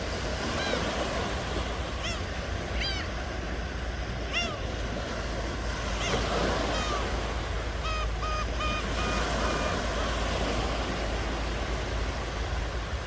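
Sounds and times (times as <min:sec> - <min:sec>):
ocean surf washing on shore: 0:00.0 - 0:13.0
bird calling: 0:00.4 - 0:03.2, 0:04.2 - 0:04.9, 0:05.8 - 0:11.0.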